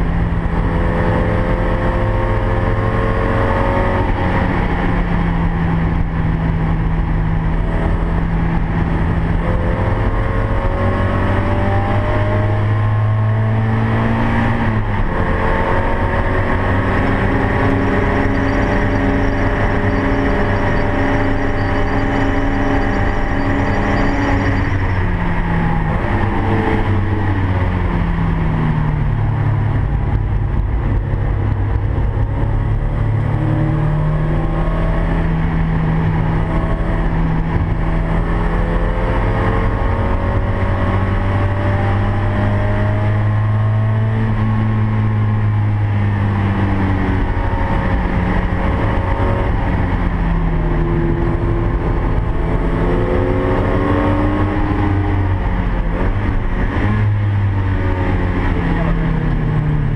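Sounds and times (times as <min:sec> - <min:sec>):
road and wind noise: 0:00.0 - 0:59.9
car engine revving from inside cabin: 0:09.3 - 0:25.0.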